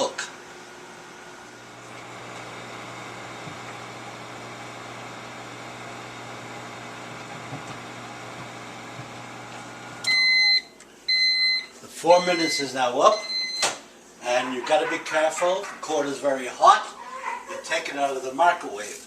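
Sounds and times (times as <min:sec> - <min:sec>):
microwave oven humming: 0:00.0 - 0:13.7
microwave beep: 0:05.0 - 0:13.8.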